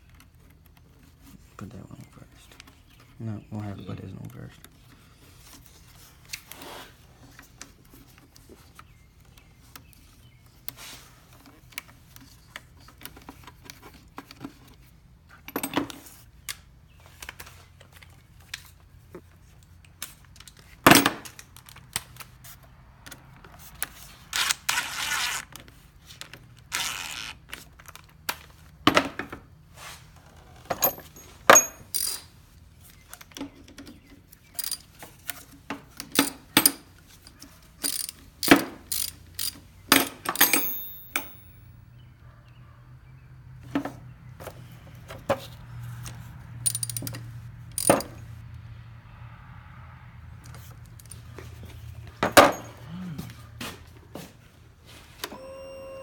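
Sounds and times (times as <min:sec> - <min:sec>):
hand tools clinking: 0:30.7 - 0:32.3, 0:34.6 - 0:34.9, 0:36.1 - 0:41.6, 0:46.6 - 0:48.2, 0:52.2 - 0:53.3.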